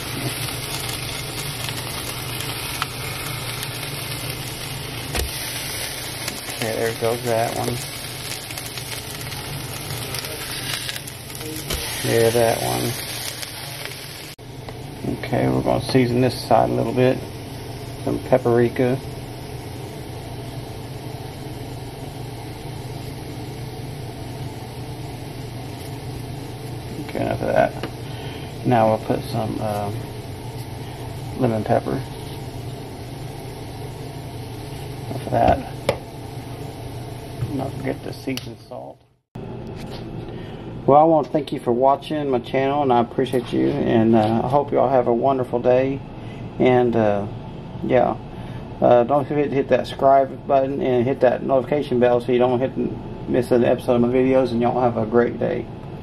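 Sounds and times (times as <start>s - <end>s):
fish sizzling in oil: 0.0s - 14.4s, 16.5s - 38.5s
steady low hum: 0.0s - 56.0s.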